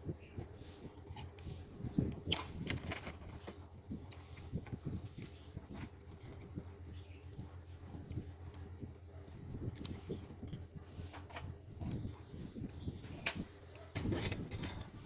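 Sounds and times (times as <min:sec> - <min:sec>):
small parts clicking and tapping: 0:02.0 - 0:07.5.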